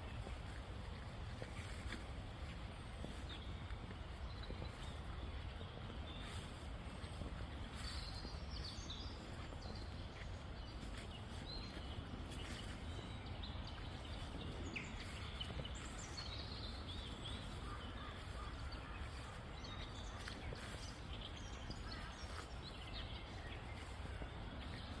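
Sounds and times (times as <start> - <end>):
low outdoor background noise: 0.0 - 25.0
birds chirping and calling: 11.6 - 24.1.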